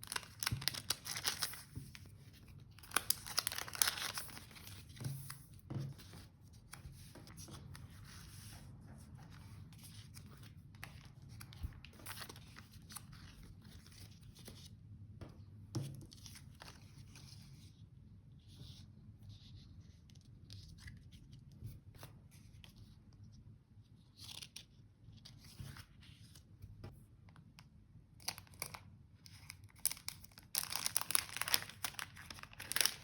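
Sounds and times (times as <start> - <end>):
paper rustling: 0.0 - 14.7, 30.6 - 33.0
paper tearing and crinkling: 2.9 - 4.6, 30.6 - 33.0.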